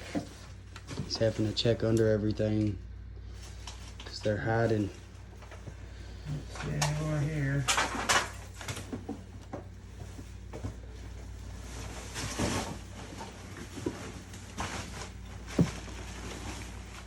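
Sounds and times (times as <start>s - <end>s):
steady low hum: 0.0s - 17.0s
clutter knocking and clattering: 6.4s - 17.0s.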